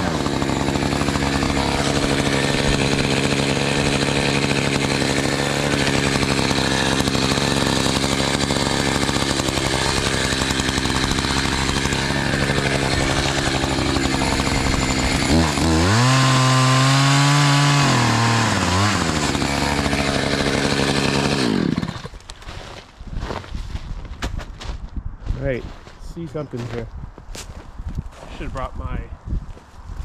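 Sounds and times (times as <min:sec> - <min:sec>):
chainsaw cutting wood: 0:00.0 - 0:22.7.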